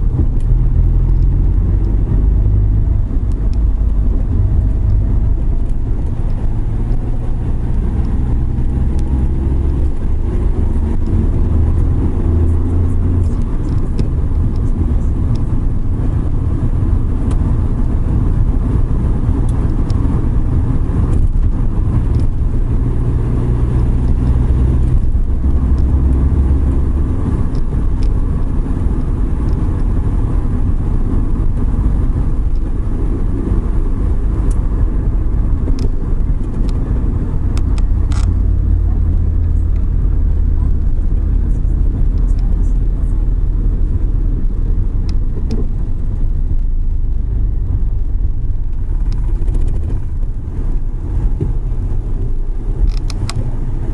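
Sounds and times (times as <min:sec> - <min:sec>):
van engine rumble: 0:00.0 - 0:53.9.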